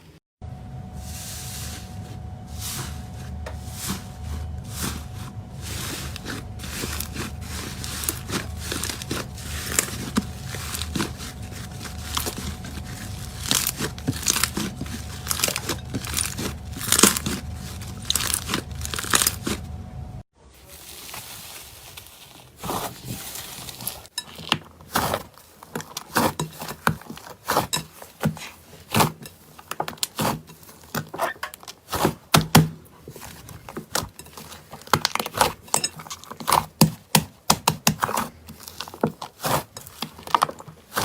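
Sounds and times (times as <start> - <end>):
low hum: 0.4 - 20.2.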